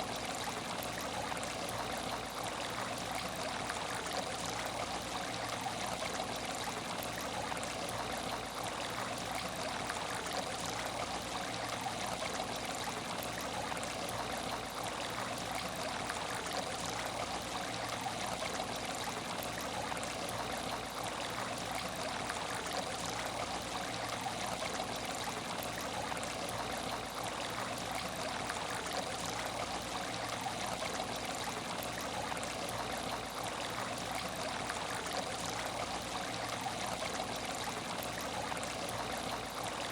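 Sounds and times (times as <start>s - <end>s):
aquarium water trickling: 0.0s - 39.9s.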